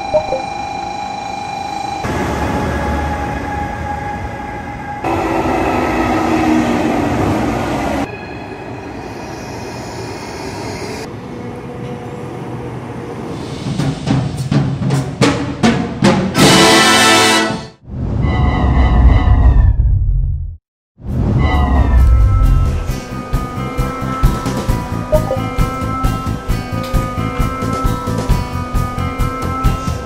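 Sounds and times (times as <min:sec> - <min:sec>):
high-speed trains rushing: 0:02.0 - 0:16.7
marching band: 0:14.0 - 0:17.7.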